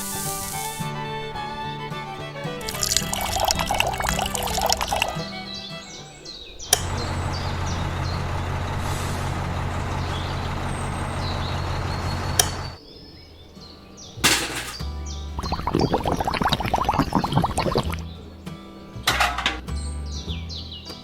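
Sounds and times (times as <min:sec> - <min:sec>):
loud hiss: 0:00.0 - 0:01.0, 0:08.8 - 0:09.4
background music: 0:00.0 - 0:06.3
click: 0:06.7 - 0:07.0, 0:12.4 - 0:12.6
vehicle engine running: 0:06.8 - 0:12.8.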